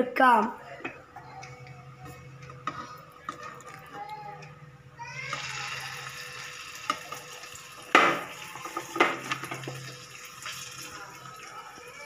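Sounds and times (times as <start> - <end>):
chicken sizzling in hot oil: 5.2 - 12.0.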